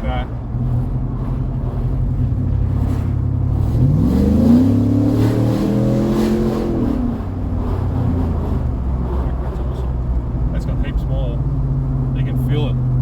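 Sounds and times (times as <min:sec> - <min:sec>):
truck engine accelerating: 0:00.0 - 0:13.0.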